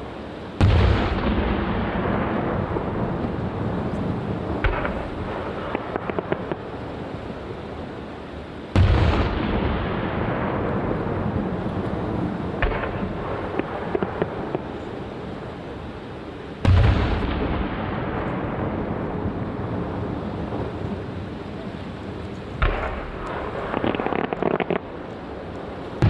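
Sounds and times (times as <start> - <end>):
firework booms with rolling echo: 0.0 - 26.0
firework pops and crackling: 0.6 - 6.8, 11.6 - 15.0, 22.1 - 26.0.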